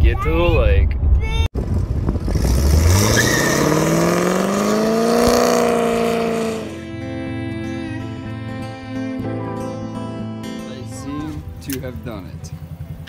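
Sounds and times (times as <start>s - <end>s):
car engine accelerating hard: 1.7s - 6.9s
music: 6.7s - 13.0s.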